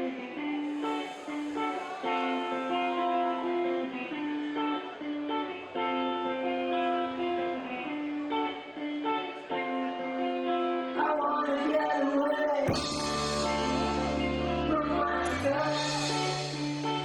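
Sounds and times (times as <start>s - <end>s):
rock guitar strumming: 12.7s - 17.0s.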